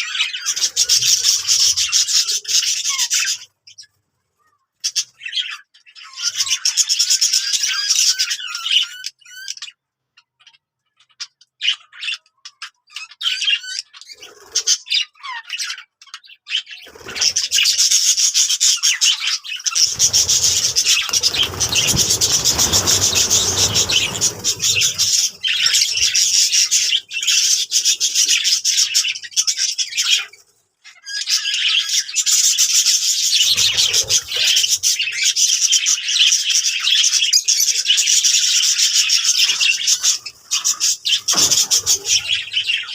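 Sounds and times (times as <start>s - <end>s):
budgerigars chattering: 19.8s - 30.3s, 33.2s - 35.3s, 39.4s - 42.9s
low rustling noise: 19.9s - 26.8s.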